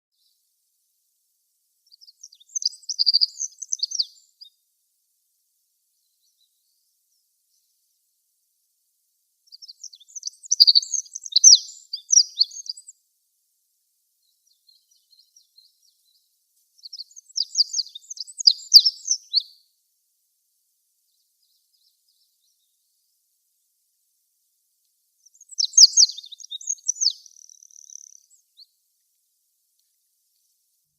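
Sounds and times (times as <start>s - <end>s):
bird singing trilled phrases: 1.9s - 4.6s, 9.5s - 13.0s, 14.2s - 19.7s, 25.2s - 28.8s.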